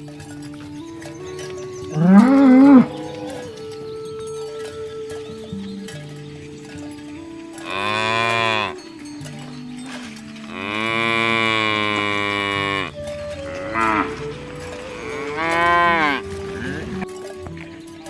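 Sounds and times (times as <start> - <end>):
cattle mooing: 2.0 - 3.6, 7.6 - 8.8, 10.5 - 17.0.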